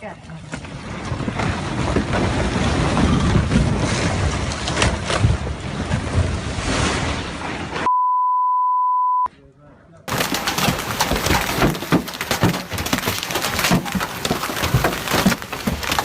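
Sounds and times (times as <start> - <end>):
landslide debris rushing and rumbling: 0.3 - 7.8, 10.1 - 16.0
censor bleep: 7.9 - 9.3.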